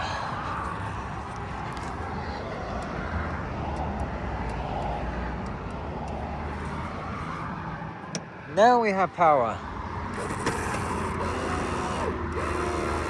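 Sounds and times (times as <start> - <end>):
motor humming: 10.1 - 13.0.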